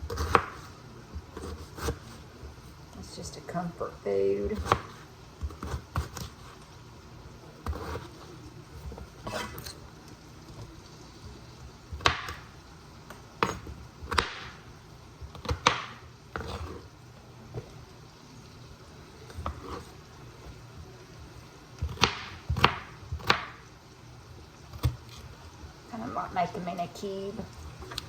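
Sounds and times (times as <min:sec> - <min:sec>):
knife chopping on cutting board: 0:00.1 - 0:00.7, 0:01.3 - 0:02.2, 0:04.6 - 0:06.5, 0:07.6 - 0:08.2, 0:08.8 - 0:09.8, 0:11.9 - 0:12.5, 0:13.4 - 0:14.6, 0:15.3 - 0:16.8, 0:19.3 - 0:19.9, 0:21.8 - 0:23.6.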